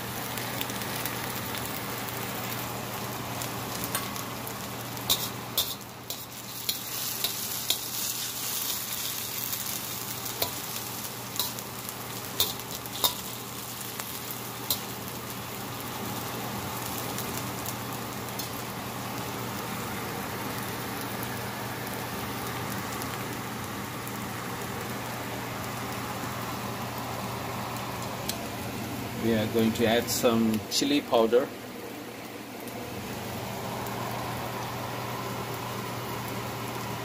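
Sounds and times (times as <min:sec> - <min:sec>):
onions sizzling in oil: 0:00.0 - 0:37.0.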